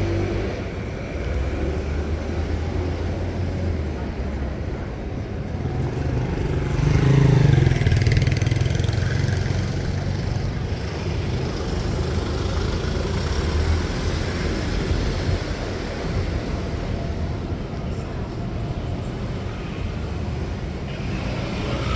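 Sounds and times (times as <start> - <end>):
traffic hum: 0.0 - 21.9.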